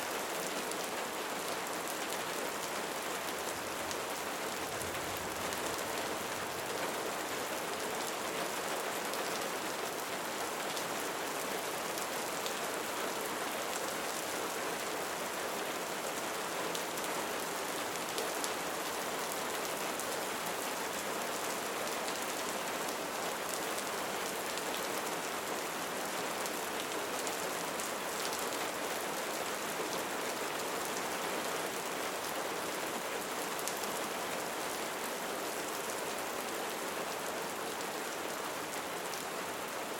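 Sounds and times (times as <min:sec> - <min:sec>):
rain pattering: 0:00.2 - 0:12.6.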